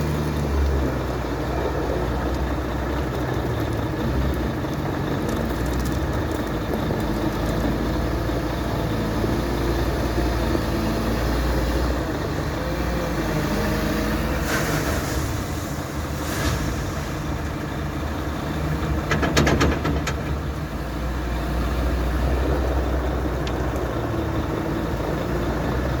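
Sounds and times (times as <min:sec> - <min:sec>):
wheel loader diesel engine running: 0:00.0 - 0:26.0
rattling clatter: 0:16.2 - 0:20.7.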